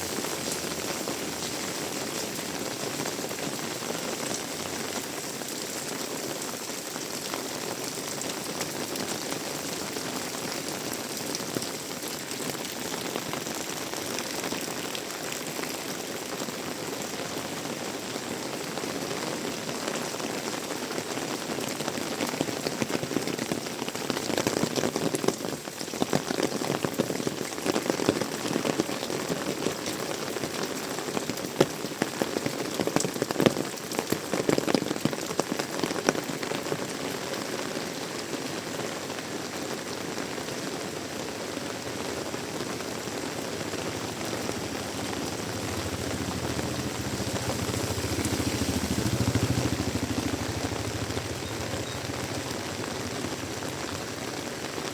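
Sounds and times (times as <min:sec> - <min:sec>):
heavy rain pouring: 0:00.0 - 0:54.9
vehicle engine hum: 0:42.9 - 0:54.3.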